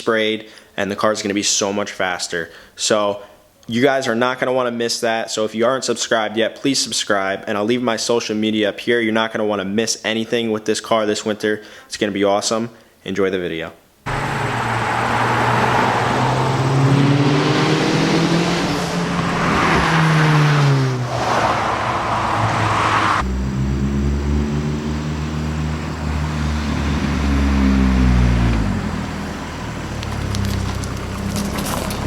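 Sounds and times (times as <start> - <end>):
car engine accelerating through gears: 14.1 - 32.0.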